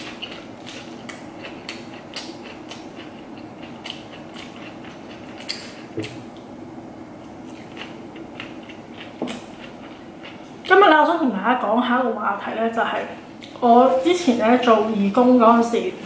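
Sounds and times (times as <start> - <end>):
chewing lettuce wrap: 0.0 - 6.5, 7.2 - 10.7.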